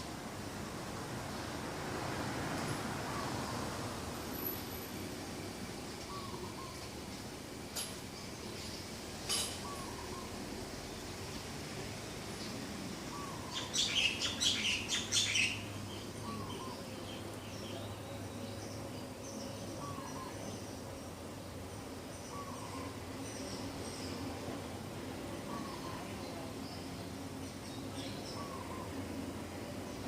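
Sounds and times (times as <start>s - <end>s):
faint distant bird chirps: 5.4s - 7.0s, 8.1s - 11.2s, 12.4s - 30.0s.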